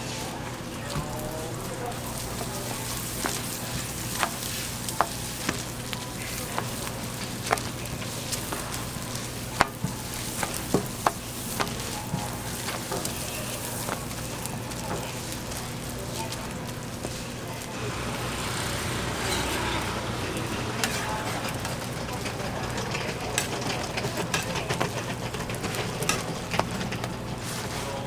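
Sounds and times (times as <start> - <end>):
food sizzling on a griddle: 0.1 - 21.7.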